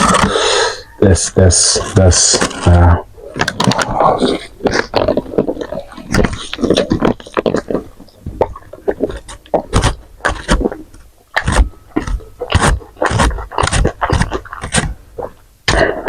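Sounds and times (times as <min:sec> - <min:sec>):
wet chewing and lip smacking: 0:03.5 - 0:16.0.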